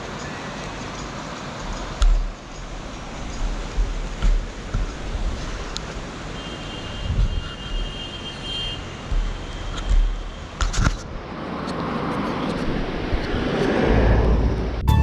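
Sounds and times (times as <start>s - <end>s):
wind buffeting microphone: 1.8s - 6.3s, 7.0s - 8.0s, 12.2s - 14.8s.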